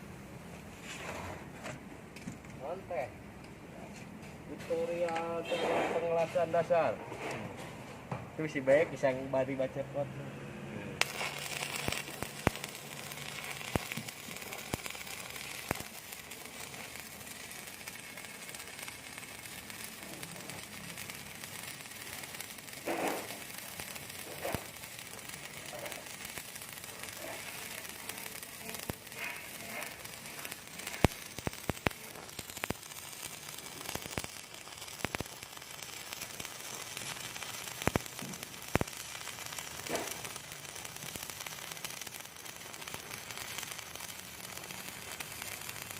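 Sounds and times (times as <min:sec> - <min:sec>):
welding spatter pops: 0:03.4 - 0:09.0, 0:11.0 - 0:45.9
arc welding crackling hiss: 0:04.0 - 0:07.7, 0:08.4 - 0:10.0, 0:11.0 - 0:45.9.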